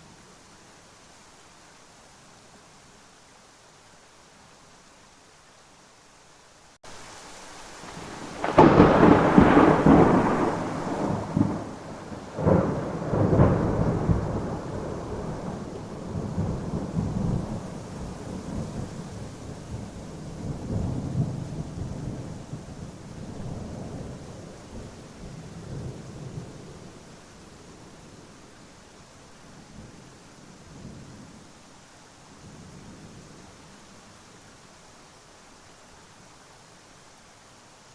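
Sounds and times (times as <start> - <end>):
steady rain: 0.0 - 37.9
thunder: 7.9 - 26.8.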